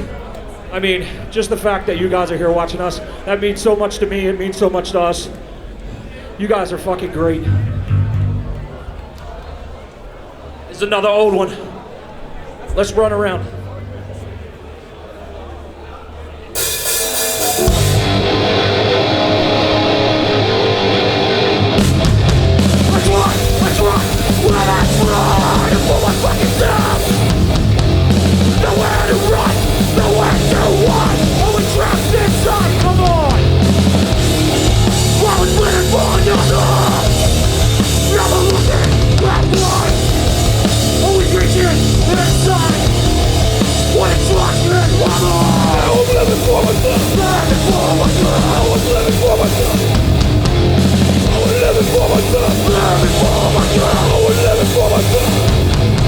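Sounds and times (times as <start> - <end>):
drums: 7.2 - 10.5, 16.4 - 56.0
distorted guitars: 7.3 - 9.1, 16.6 - 56.0
bass guitar: 7.4 - 9.2, 17.6 - 56.0
shouted vocals: 18.4 - 56.0.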